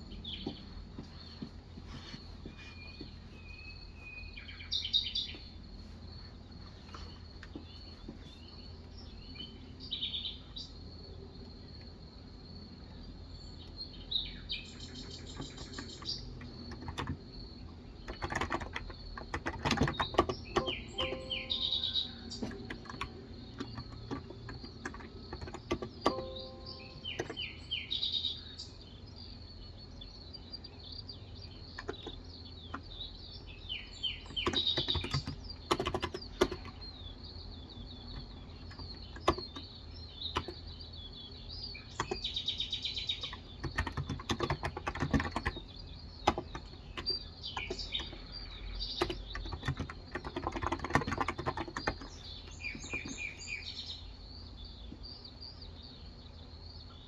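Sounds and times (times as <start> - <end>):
small birds chirping: 0.0 - 57.0
keyboard typing: 15.1 - 27.6, 31.7 - 32.9, 34.2 - 36.9, 38.0 - 40.6, 42.0 - 42.3, 43.2 - 53.4.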